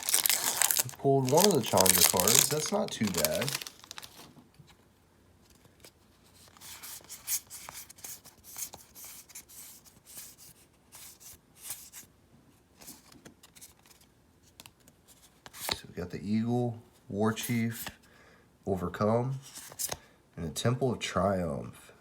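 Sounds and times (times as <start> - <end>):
trading cards sliding and rubbing: 0.0 - 4.3, 6.2 - 12.1.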